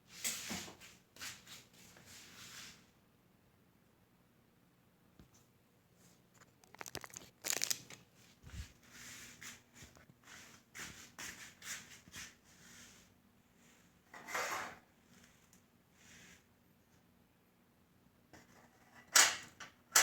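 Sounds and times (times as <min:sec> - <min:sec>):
scrape: 0:00.0 - 0:02.9, 0:08.5 - 0:16.5
rustling: 0:06.0 - 0:12.4.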